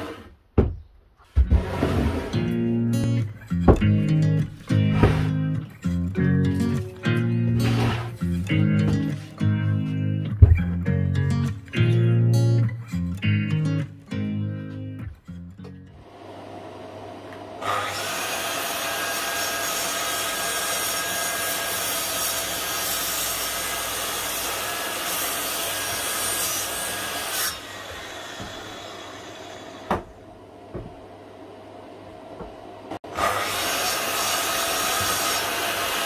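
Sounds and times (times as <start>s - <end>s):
power tool cutting wood: 0.0s - 0.4s, 6.6s - 9.0s, 17.3s - 30.0s, 33.0s - 36.0s
sharp knocks: 3.7s - 4.0s, 10.4s - 10.8s.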